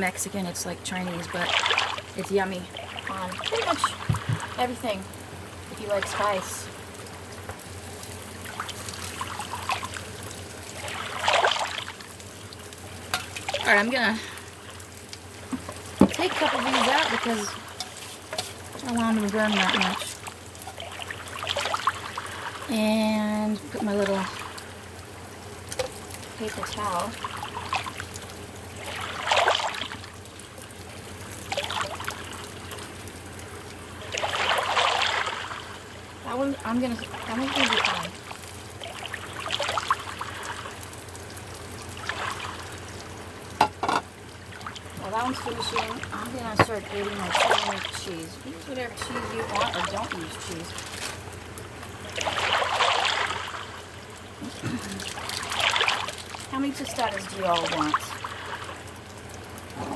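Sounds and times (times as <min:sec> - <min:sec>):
low steady hum: 0:00.0 - 0:59.9
tortillas sizzling in hot oil: 0:01.7 - 0:59.9
pan scraping clatter: 0:17.2 - 0:18.9, 0:43.6 - 0:44.1.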